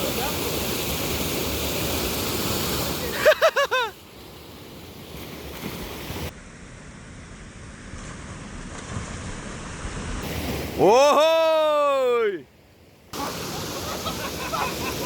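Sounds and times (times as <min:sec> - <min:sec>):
rushing stream water: 0:00.0 - 0:07.0, 0:08.2 - 0:15.0.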